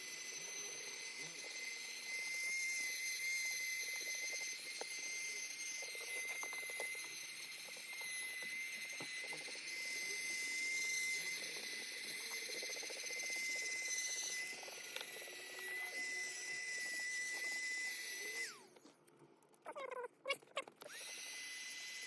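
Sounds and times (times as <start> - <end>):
handheld vacuum cleaner whine: 0.0 - 18.9, 20.8 - 22.0.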